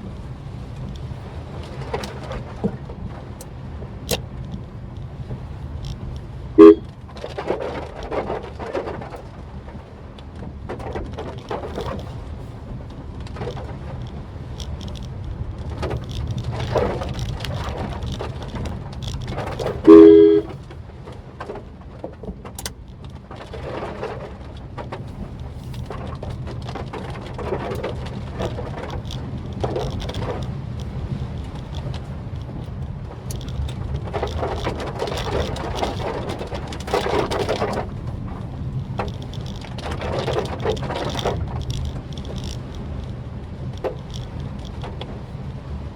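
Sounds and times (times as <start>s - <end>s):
car engine and road rumble: 0.0s - 45.9s
water swishing and rain: 0.0s - 45.9s
two-tone car horn: 6.6s - 6.9s, 19.9s - 20.6s.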